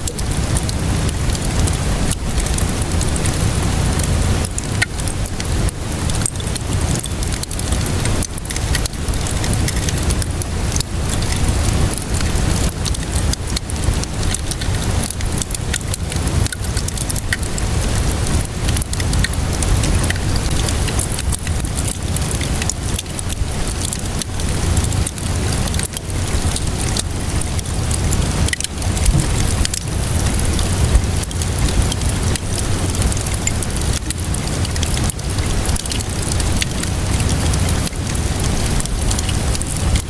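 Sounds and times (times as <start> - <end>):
steady rainfall: 0.0 - 40.0
wood fire crackling: 0.0 - 40.0
low rumble: 28.8 - 31.2.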